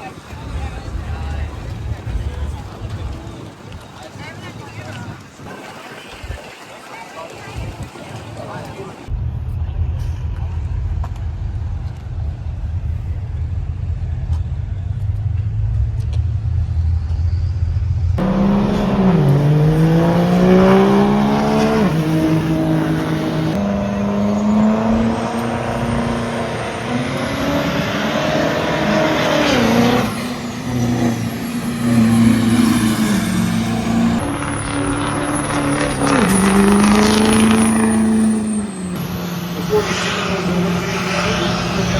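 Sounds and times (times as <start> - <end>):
diesel truck engine revving: 9.1 - 41.9.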